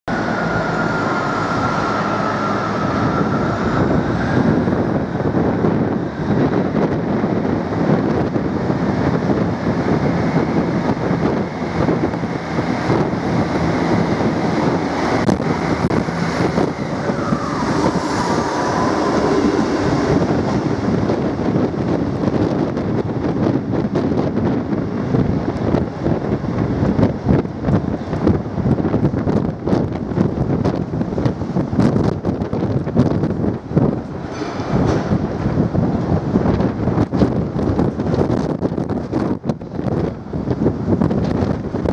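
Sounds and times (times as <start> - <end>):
whining tone falling in pitch: 0.1 - 5.6, 10.6 - 22.6
train diesel engines under power: 0.1 - 41.9
train wheel and rail noise: 0.1 - 41.9
wind buffeting microphone: 0.1 - 41.9.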